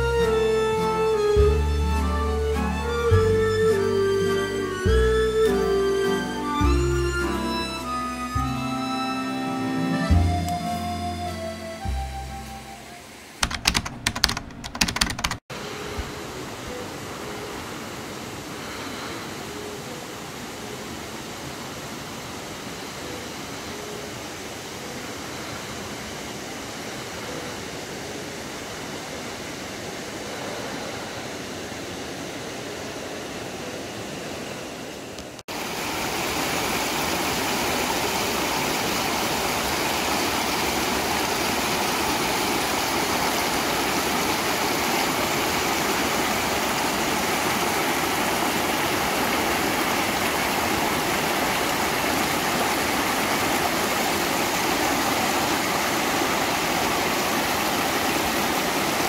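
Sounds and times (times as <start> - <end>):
steady hiss: 15.6 - 59.0
stream rushing over rocks: 15.6 - 59.0.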